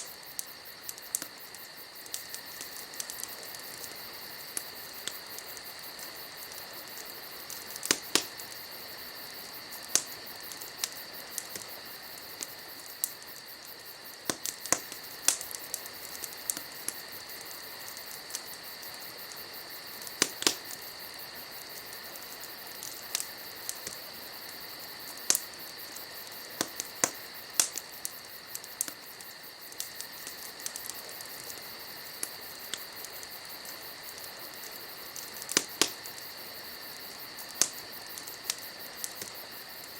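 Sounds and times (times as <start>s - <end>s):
night insects chirring: 0.0s - 39.9s
wood fire crackling and popping: 0.0s - 39.9s.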